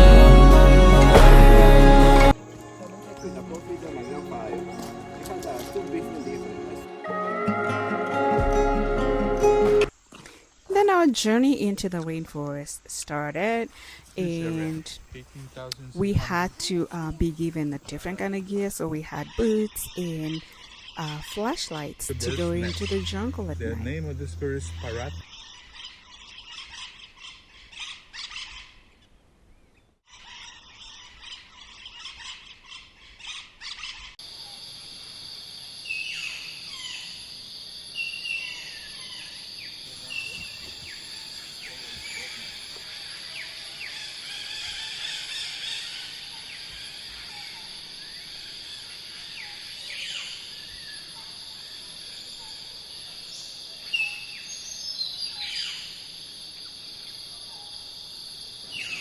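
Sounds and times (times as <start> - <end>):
shrill insect drone: 1.5 - 6.9, 22.1 - 25.2, 34.2 - 59.0
birds calling: 2.4 - 6.9.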